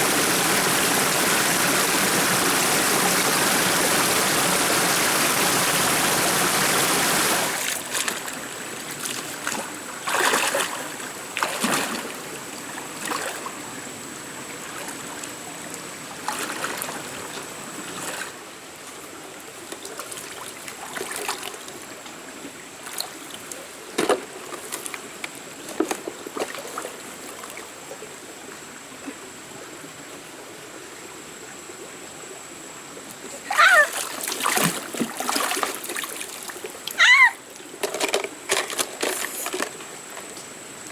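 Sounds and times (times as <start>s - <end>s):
stream water running: 0.0s - 40.9s
small splashes in water: 7.5s - 13.5s, 33.3s - 40.3s.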